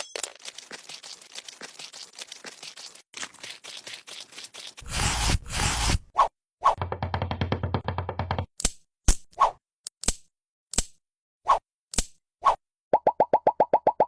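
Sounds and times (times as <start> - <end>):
loud rough scraping: 4.8 - 6.0.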